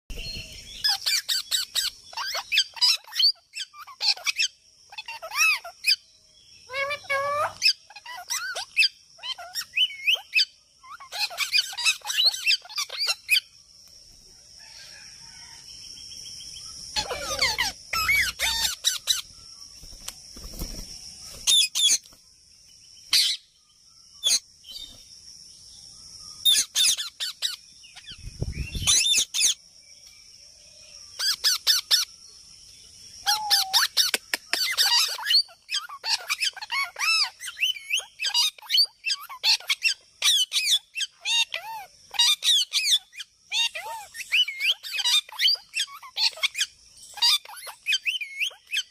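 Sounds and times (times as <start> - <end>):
birds chirping and squeaking: 0.1 - 22.2, 22.8 - 25.2, 26.0 - 30.0, 30.8 - 32.2, 33.0 - 48.9.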